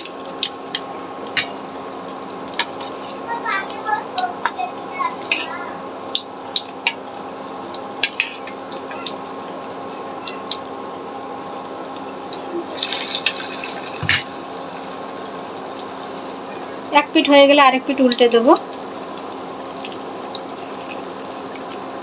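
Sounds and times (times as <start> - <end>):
oil crackling: 0.0 - 16.6
deep-frying sizzle with pops: 0.0 - 22.0.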